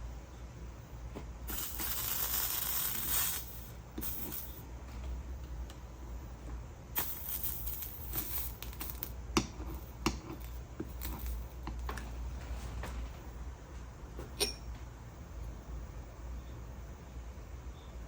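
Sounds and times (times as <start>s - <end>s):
steady low hum: 0.0s - 18.0s
glassy ring: 1.5s - 4.6s, 14.4s - 14.8s
tools and glass clicking: 14.3s - 14.8s.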